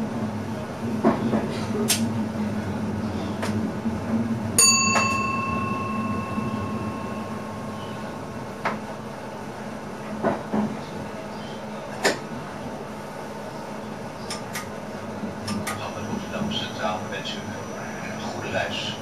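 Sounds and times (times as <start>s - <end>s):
low train running hum: 0.0s - 19.0s
bell-like ding: 4.6s - 8.5s.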